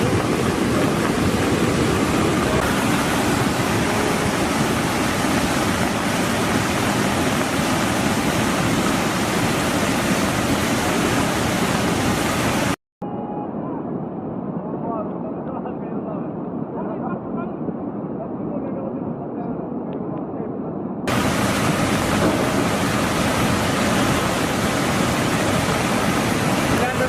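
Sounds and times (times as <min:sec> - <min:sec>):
floodwater rushing: 0:00.0 - 0:12.8, 0:21.1 - 0:27.0.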